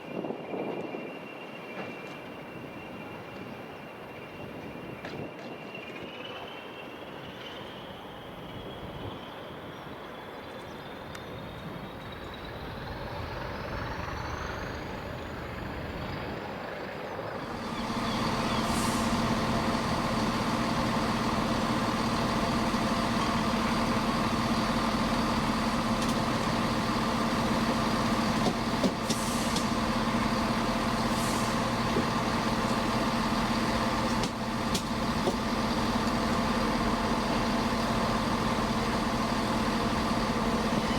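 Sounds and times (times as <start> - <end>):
train electric traction whine: 0.4 - 40.9
diesel locomotive idling hum: 5.9 - 40.9
short air hisses: 17.7 - 19.9, 28.9 - 29.8, 31.1 - 31.8.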